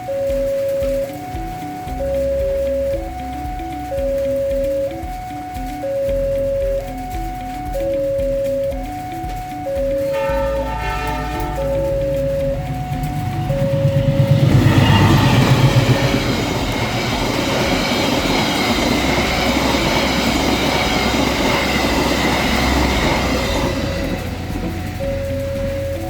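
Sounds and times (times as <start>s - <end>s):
two-tone crossing warning signal: 0.0s - 26.0s
train wheels on rail: 10.0s - 26.0s
wheel squeal: 10.0s - 26.0s.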